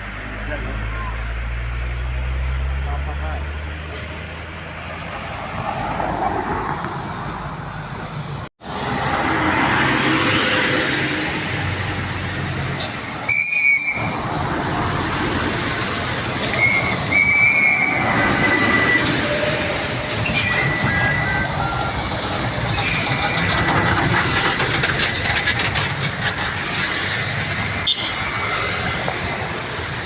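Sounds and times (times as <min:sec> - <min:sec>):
heavy trucks driving uphill: 0:00.0 - 0:30.0
high-pitched squeals: 0:13.2 - 0:14.3, 0:16.3 - 0:29.4.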